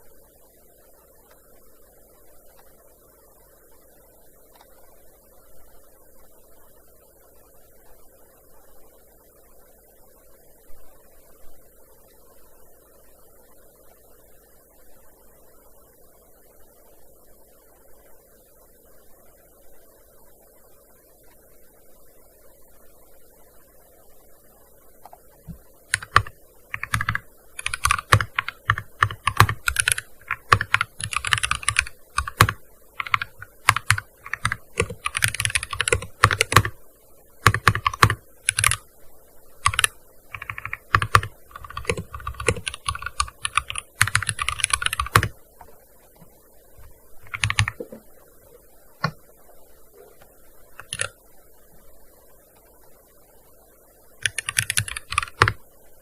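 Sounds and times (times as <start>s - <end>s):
keyboard typing: 25.0s - 36.8s, 37.4s - 38.8s, 39.6s - 45.4s, 47.2s - 48.0s, 50.8s - 51.2s, 54.2s - 55.6s.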